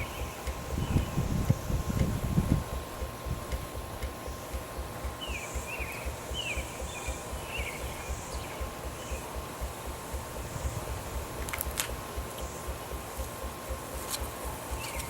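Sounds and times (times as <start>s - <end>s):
bird chirping: 0.0s - 1.2s, 4.2s - 9.8s, 14.7s - 15.0s
steam engine beat: 0.0s - 15.0s
sharp clicks: 1.4s - 9.8s, 11.4s - 15.0s.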